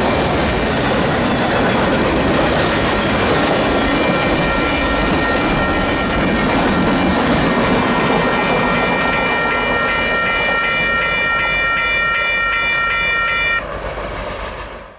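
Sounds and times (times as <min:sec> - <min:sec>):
freight train clattering: 0:00.0 - 0:12.3
high pulsing ringing tone: 0:03.6 - 0:07.1, 0:07.8 - 0:13.6.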